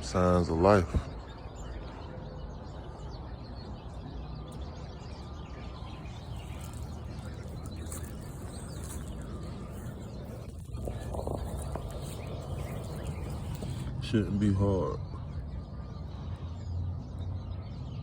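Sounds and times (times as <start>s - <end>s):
faint birds chirping: 0.0s - 18.0s
low background rumble: 5.8s - 14.1s.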